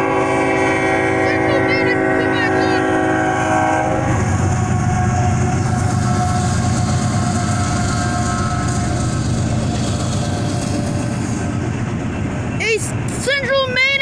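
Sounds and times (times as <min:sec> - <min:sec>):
train horn: 0:00.0 - 0:09.5
freight train rumbling past: 0:00.0 - 0:14.0.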